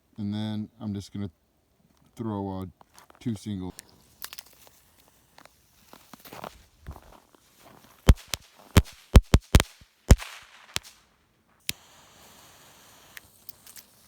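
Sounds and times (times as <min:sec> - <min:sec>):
firecrackers banging: 0:08.1 - 0:11.1.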